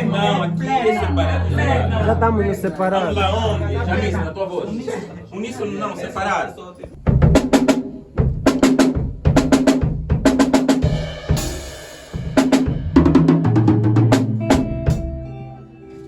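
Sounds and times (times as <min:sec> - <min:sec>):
snare and bass drum hits: 0:07.1 - 0:15.0.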